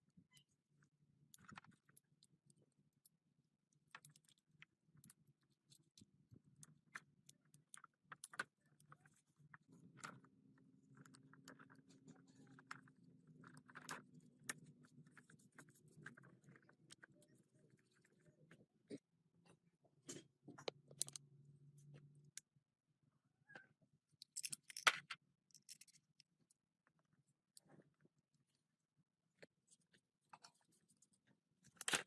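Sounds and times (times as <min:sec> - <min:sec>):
faint clicks and taps: 0:00.3 - 0:22.5.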